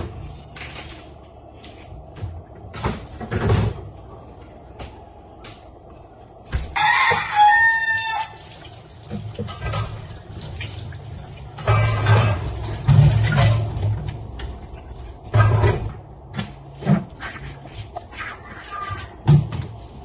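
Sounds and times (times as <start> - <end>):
rooster crowing: 6.6 - 8.5.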